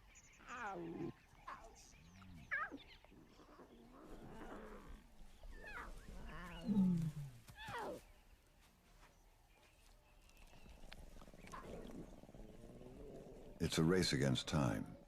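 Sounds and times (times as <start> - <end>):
lions growling and snarling: 0.4 - 7.8, 10.6 - 15.0.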